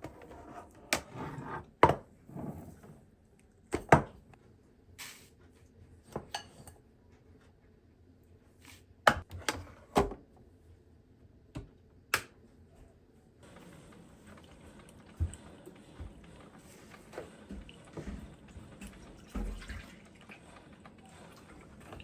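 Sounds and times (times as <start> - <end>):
dishes and utensils clinking: 6.1 - 6.8.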